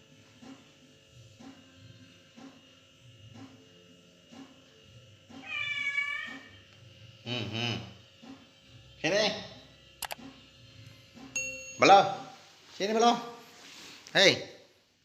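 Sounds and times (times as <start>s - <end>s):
cat meowing: 5.4s - 6.6s.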